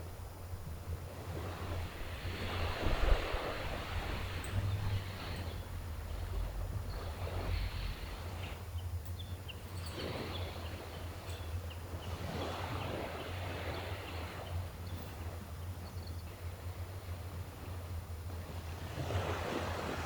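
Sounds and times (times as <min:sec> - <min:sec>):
steady low rumble: 0:00.0 - 0:12.0
sea waves washing ashore: 0:00.0 - 0:20.0.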